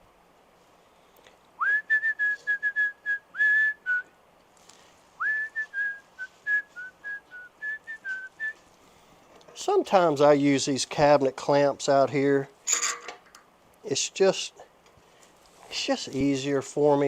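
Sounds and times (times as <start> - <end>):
person whistling a tune: 1.6 - 4.1, 5.2 - 8.6.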